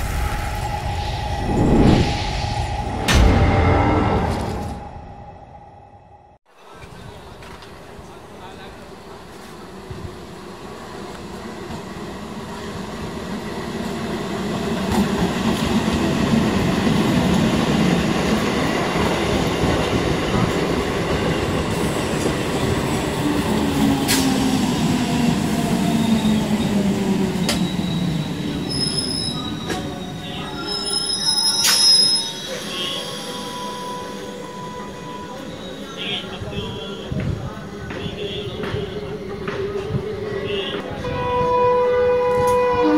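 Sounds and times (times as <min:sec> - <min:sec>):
electric train rumble: 0:00.0 - 0:06.4
brake squeal: 0:27.4 - 0:36.9.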